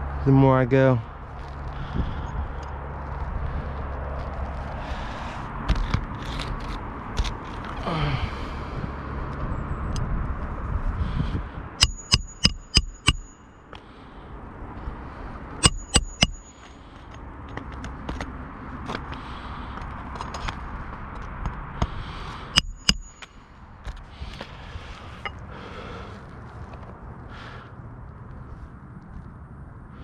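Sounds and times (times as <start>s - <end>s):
outdoor noise rush: 0.0s - 30.0s
sharp ringing clicks: 11.8s - 13.8s, 15.6s - 17.2s, 22.6s - 23.5s.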